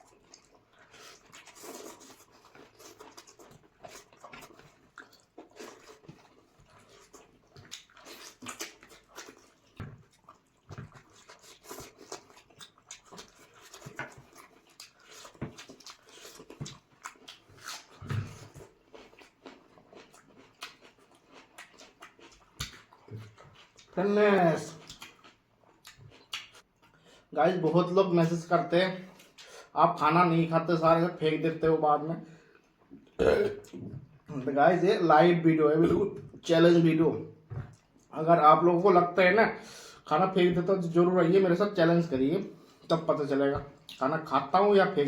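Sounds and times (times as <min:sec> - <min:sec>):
wet chewing and slurping: 0:00.0 - 0:24.0, 0:24.7 - 0:27.3.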